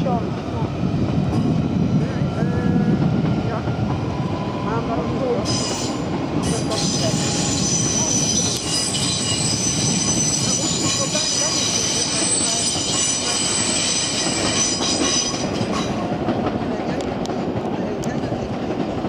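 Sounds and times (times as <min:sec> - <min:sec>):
train wheels rumbling on rail: 0:00.0 - 0:19.0
high squealing wheels: 0:05.4 - 0:16.1.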